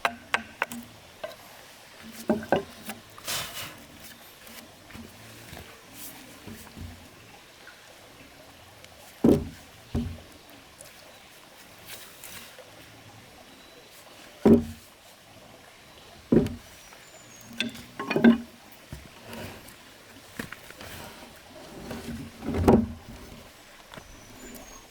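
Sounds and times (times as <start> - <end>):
dull knocks: 9.2 - 10.2, 14.5 - 14.8, 16.3 - 16.7.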